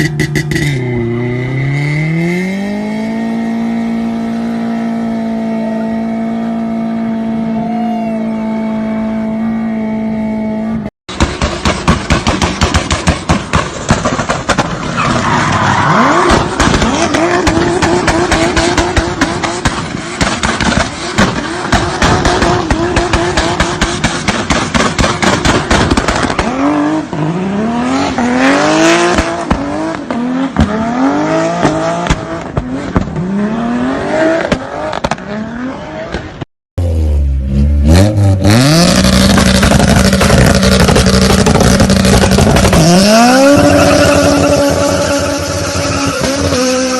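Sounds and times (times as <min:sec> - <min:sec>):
car engines revving: 0:00.0 - 0:46.9
tyre squeal: 0:43.1 - 0:46.9.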